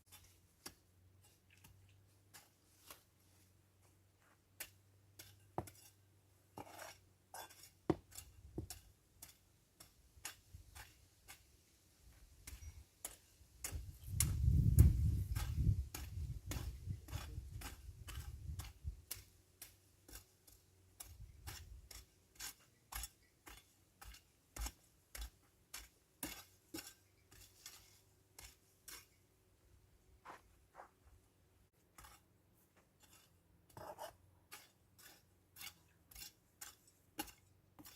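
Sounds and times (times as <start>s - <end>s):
weeding tool scraping soil: 0.0s - 29.2s, 31.8s - 37.9s.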